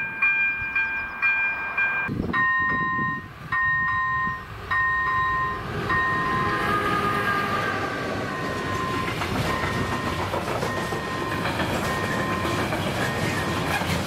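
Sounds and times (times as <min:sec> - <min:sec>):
crossing warning bell dinging: 0:00.0 - 0:14.0
freight train rumbling: 0:00.0 - 0:14.0
wheels clattering over rail joints: 0:08.0 - 0:14.0.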